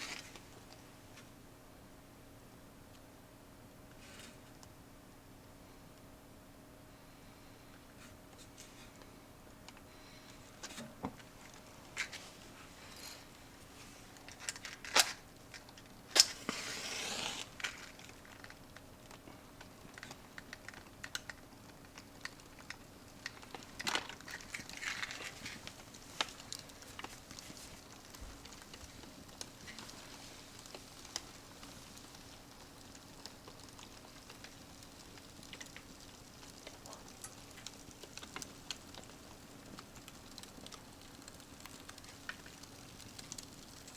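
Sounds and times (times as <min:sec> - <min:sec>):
fire crackling and popping: 0:00.0 - 0:01.4, 0:06.9 - 0:43.9
hissing flare: 0:16.1 - 0:18.7.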